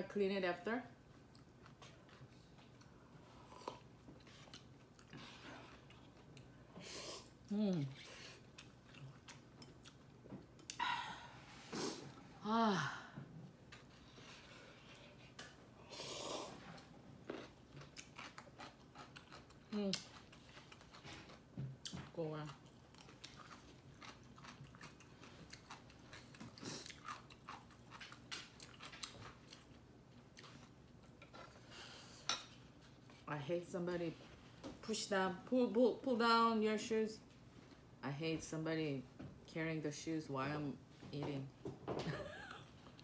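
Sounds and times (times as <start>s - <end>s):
woman sighing: 10.8s - 13.4s
person chewing and biting food: 17.2s - 31.3s.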